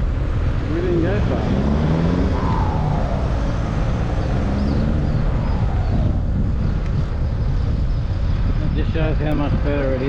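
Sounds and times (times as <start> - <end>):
wind buffeting microphone: 0.0 - 10.0
faint falling whine: 2.1 - 7.2.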